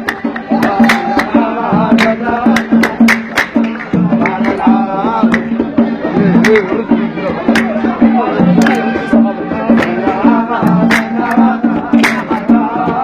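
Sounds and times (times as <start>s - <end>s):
hand drum strikes: 0.0s - 13.0s.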